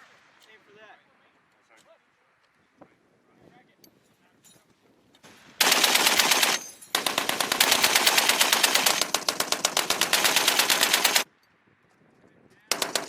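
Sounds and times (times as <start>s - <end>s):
heavy machine gun firing bursts: 5.6s - 11.2s, 12.7s - 13.0s.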